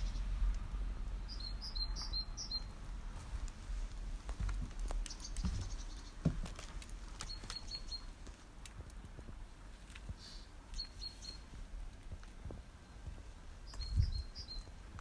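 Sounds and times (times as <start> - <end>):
low background rumble: 0.0 - 15.0
small bird chirping: 1.2 - 2.8, 5.0 - 6.2, 7.2 - 8.2, 10.7 - 11.5, 13.6 - 14.8.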